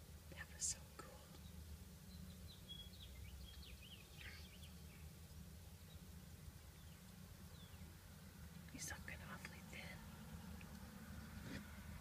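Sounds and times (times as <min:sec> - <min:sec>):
faint birdsong chirps: 0:00.0 - 0:12.0
steady low hum: 0:00.0 - 0:12.0.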